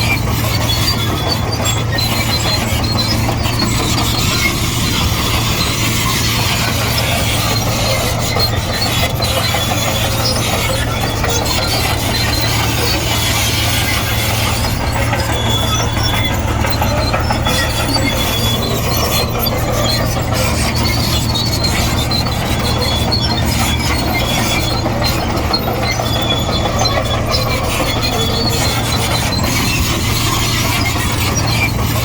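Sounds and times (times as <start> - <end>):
bulldozer diesel engine running: 0.0 - 32.0
steel tracks squealing: 0.0 - 32.0.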